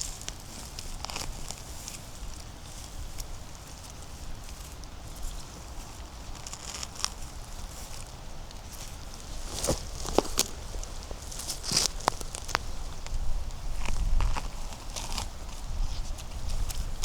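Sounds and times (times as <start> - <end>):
footsteps on dry leaves: 0.0 - 17.0
twig snapping: 9.4 - 13.2.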